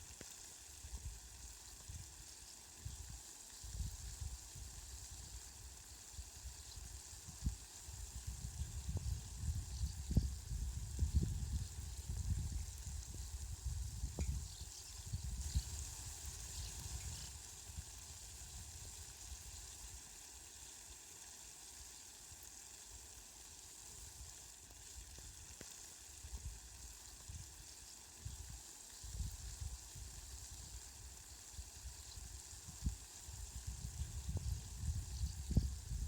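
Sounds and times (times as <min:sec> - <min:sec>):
rain hissing: 0:02.8 - 0:20.8.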